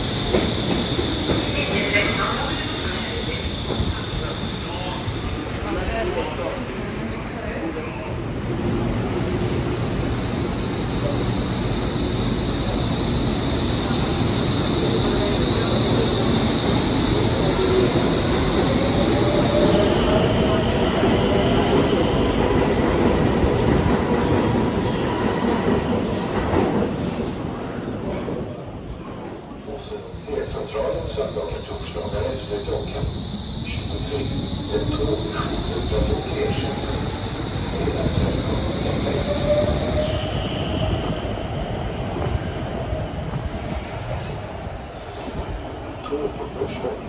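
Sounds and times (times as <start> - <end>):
faint high squeal: 0.0 - 6.3, 30.2 - 41.4
train rumbling on rails: 0.0 - 47.0.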